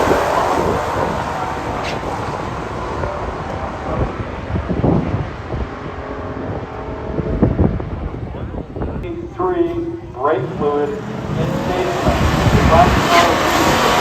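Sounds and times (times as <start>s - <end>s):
car engines rumbling: 0.0s - 14.0s
wind on microphone: 0.0s - 14.0s.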